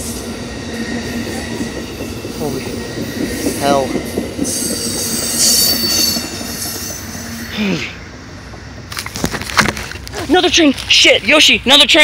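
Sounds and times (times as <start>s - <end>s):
train wheels on rails: 0.0s - 12.0s
high-pitched wheel squeal: 4.5s - 8.0s.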